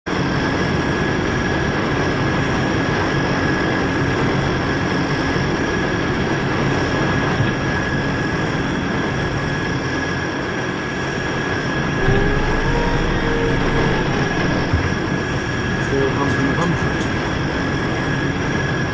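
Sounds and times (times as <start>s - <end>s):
turboprop engines running: 0.2s - 18.9s
high engine whine: 10.9s - 18.9s.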